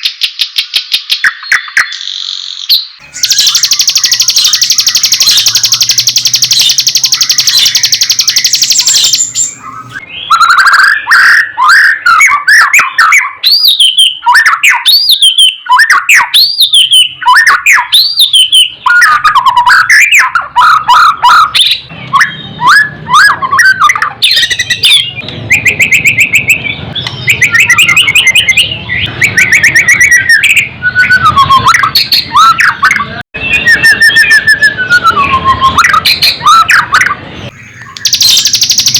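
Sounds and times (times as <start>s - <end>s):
bird singing: 0.0s - 38.9s.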